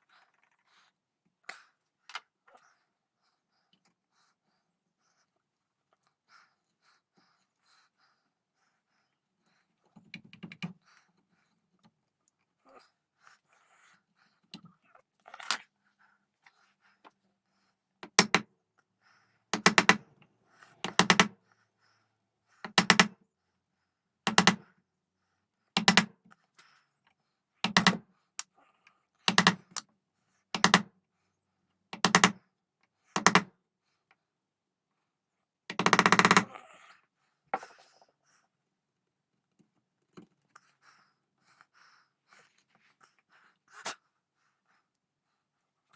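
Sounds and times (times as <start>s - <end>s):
hand tool striking wood: 18.0s - 18.4s, 19.6s - 20.0s, 20.8s - 21.3s.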